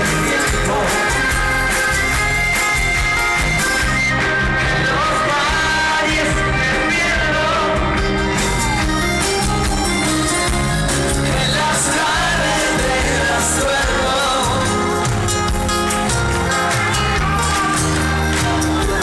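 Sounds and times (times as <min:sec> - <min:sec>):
person singing: 0:00.0 - 0:02.9, 0:04.2 - 0:08.8, 0:10.9 - 0:15.1
live pop-rock band playing: 0:00.0 - 0:19.0.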